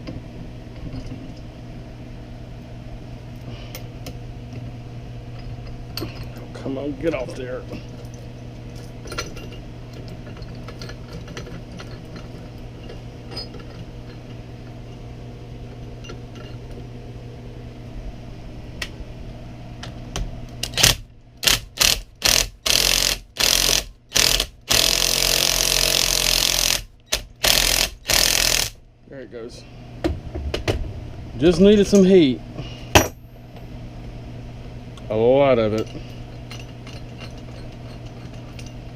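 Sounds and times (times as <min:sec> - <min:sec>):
low hum with faint ticks: 0:00.0 - 0:28.2, 0:30.0 - 0:38.9
impact wrench hammering: 0:20.7 - 0:28.8, 0:32.9 - 0:33.3.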